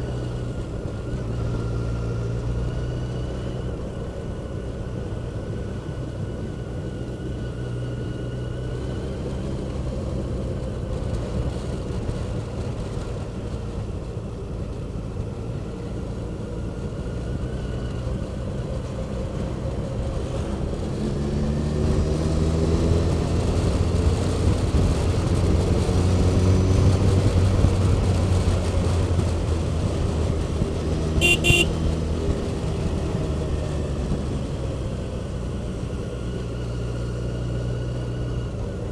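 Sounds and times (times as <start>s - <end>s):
vehicle engine and road noise: 0.0s - 38.9s
vehicle horn beeps: 31.2s - 31.7s.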